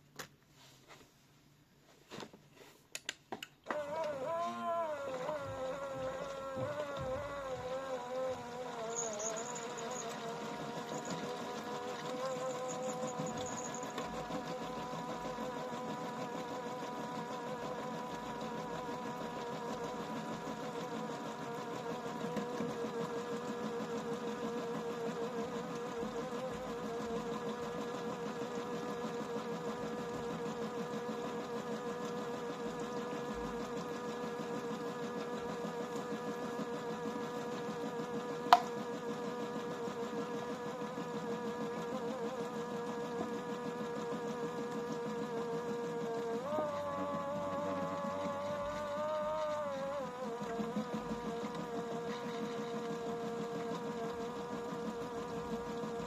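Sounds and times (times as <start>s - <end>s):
small electric motor whining: 3.6s - 56.0s.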